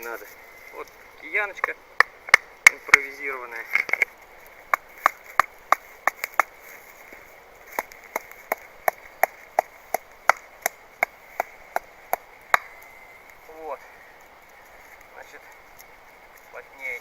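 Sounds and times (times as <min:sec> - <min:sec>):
mallet pounding wooden stakes: 0:07.8 - 0:12.8.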